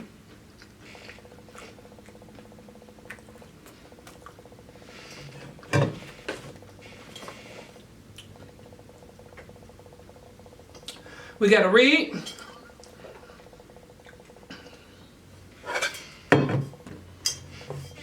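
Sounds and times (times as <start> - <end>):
person chewing food: 0.0 - 8.6, 12.4 - 15.2.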